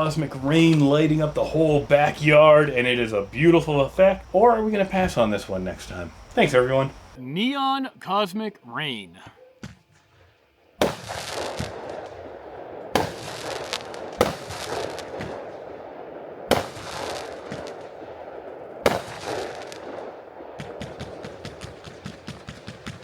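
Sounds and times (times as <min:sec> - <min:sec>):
firework shots: 0:00.0 - 0:04.3, 0:09.6 - 0:23.0
firework crackle: 0:00.0 - 0:07.2, 0:09.9 - 0:23.0
rapid firework pops: 0:10.8 - 0:23.0.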